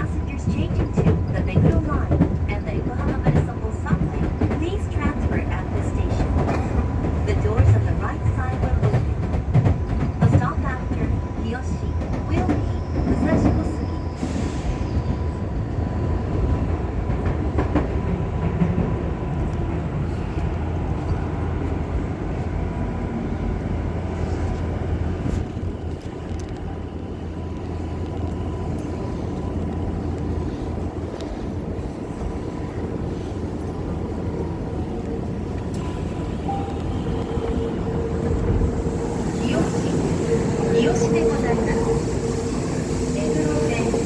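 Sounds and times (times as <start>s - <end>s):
electric train running: 35.6s - 44.0s.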